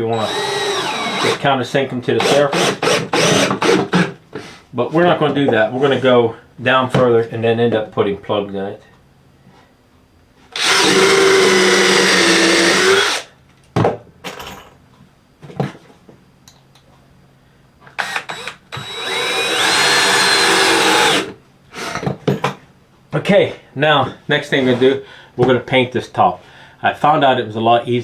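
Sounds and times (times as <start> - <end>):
power drill driving screws into wood: 0.1 - 1.4, 2.2 - 4.1, 10.6 - 13.3, 18.0 - 21.3.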